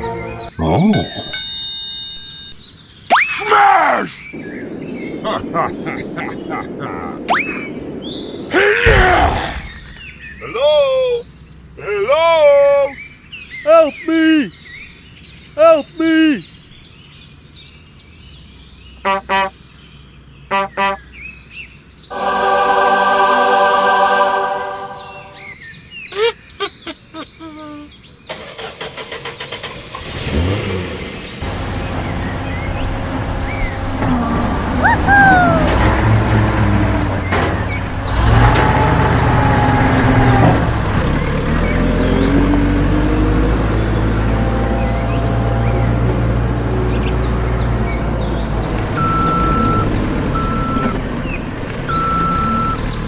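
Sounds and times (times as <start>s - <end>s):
faint birdsong: 0.0s - 1.2s, 2.5s - 22.3s, 24.7s - 29.4s, 30.9s - 53.0s
truck engine humming: 4.3s - 10.3s, 29.7s - 53.0s
vehicle horn honking: 19.1s - 19.5s.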